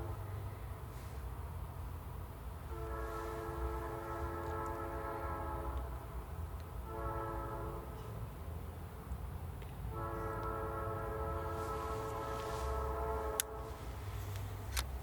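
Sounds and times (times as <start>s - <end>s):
low train rumble: 0.0s - 15.0s
locomotive air horn: 2.6s - 6.1s, 6.8s - 8.2s, 9.9s - 14.4s.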